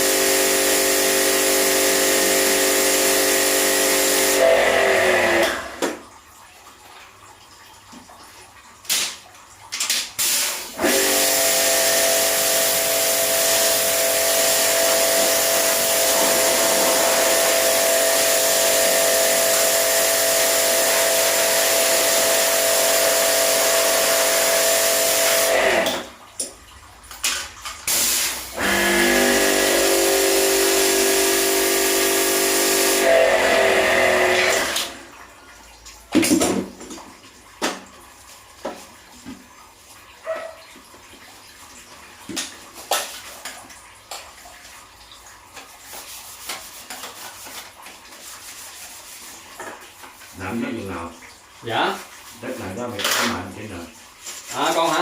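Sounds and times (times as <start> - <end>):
pressure washer pump humming: 0.0 - 5.9, 10.2 - 26.1, 27.9 - 35.2
water spray hissing: 27.9 - 33.1.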